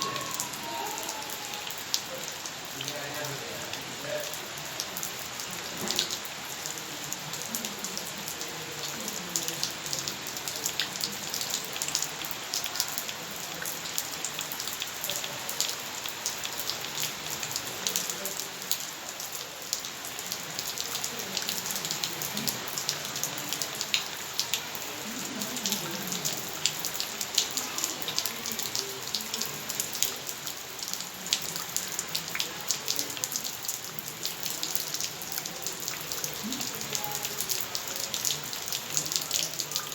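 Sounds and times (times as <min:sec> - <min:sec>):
heavy rain: 0:00.0 - 0:39.9
close raindrop hits: 0:02.8 - 0:12.7.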